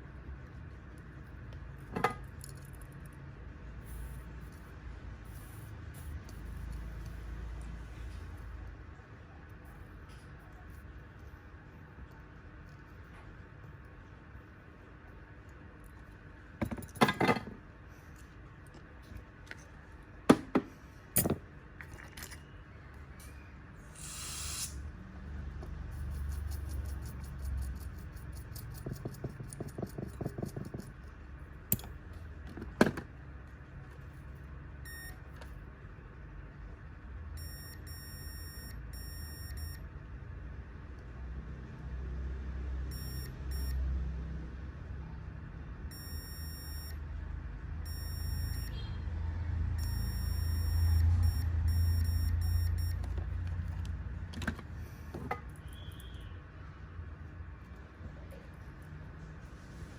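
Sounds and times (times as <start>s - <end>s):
short electronic beeps: 34.9s - 35.2s, 47.9s - 49.0s, 49.8s - 53.0s.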